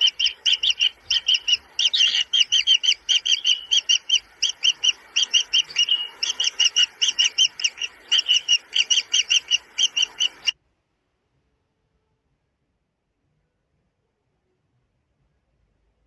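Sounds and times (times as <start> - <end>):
kingfisher shrill chirps: 0.0 - 10.5.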